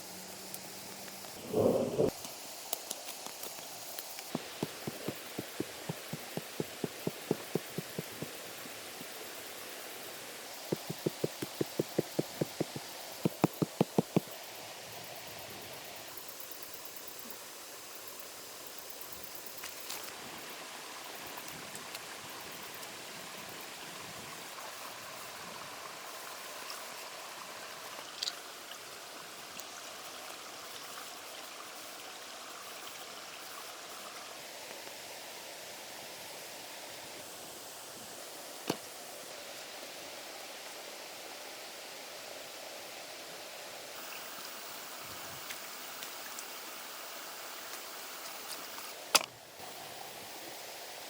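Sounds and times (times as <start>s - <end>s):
fast sharp knocks: 4.4s - 8.4s, 10.7s - 14.3s.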